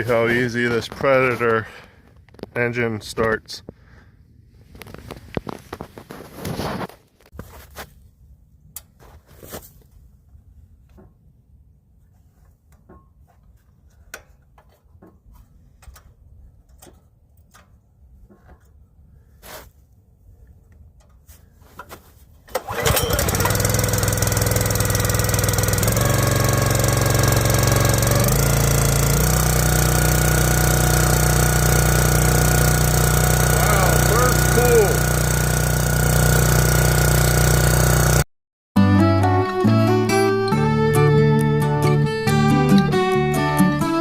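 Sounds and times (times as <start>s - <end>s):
gas engine starting and running: 22.5s - 38.2s.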